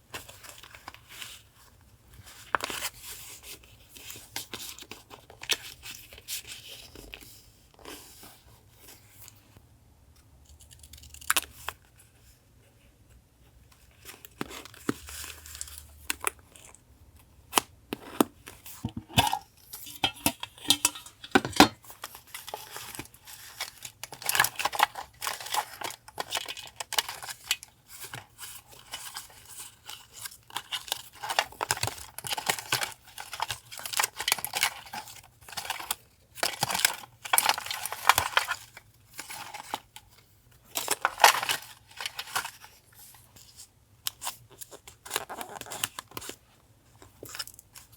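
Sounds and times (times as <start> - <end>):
paper crinkling and tearing: 21.6 - 46.4.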